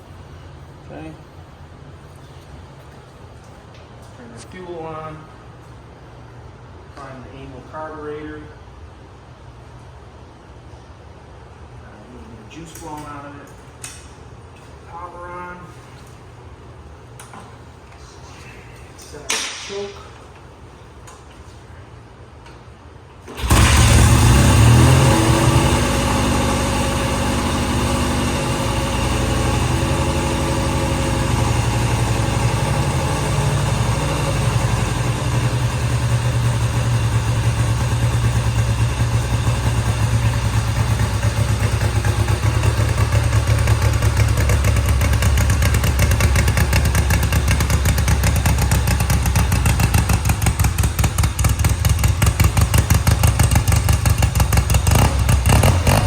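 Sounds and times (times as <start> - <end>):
motorcycle engine idling: 25.6 - 56.0.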